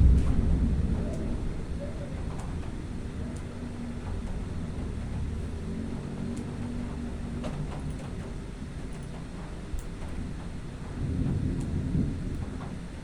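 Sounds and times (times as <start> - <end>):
distant thunder rolling: 0.0 - 8.5, 9.2 - 13.0
faint ticks: 6.2 - 8.2.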